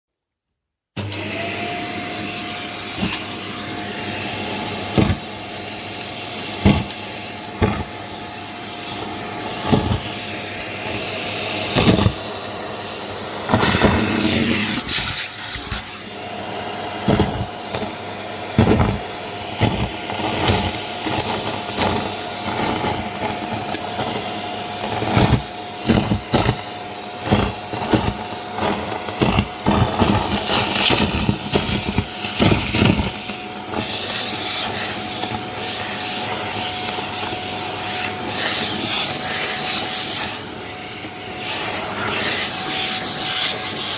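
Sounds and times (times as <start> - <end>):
vacuum cleaner motor whine: 1.0 - 43.9
vacuum knocking on floor: 4.8 - 5.4, 6.0 - 8.0, 9.5 - 11.1, 11.7 - 12.3, 13.5 - 14.8, 17.0 - 40.3.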